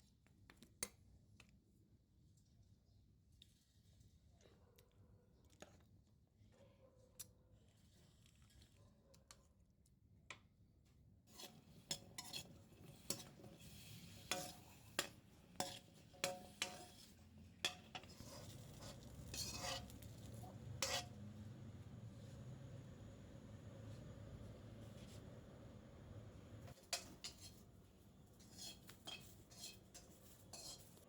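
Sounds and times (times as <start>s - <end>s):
utensils clinking against cookware: 11.3s - 21.3s, 26.7s - 31.0s
scraping stirring rustle: 11.3s - 22.6s, 23.7s - 25.4s, 26.6s - 31.0s.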